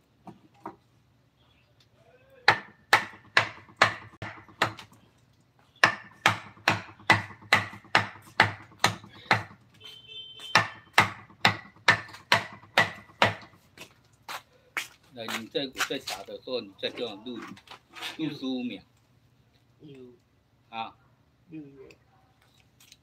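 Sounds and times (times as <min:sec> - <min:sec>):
mallet knocking on chisel: 0:02.5 - 0:04.8, 0:05.8 - 0:09.6, 0:10.5 - 0:13.5.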